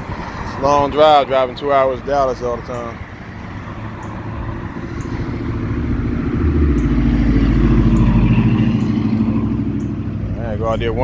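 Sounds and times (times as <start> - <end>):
vehicle engine rumble passing: 0.0 - 11.0.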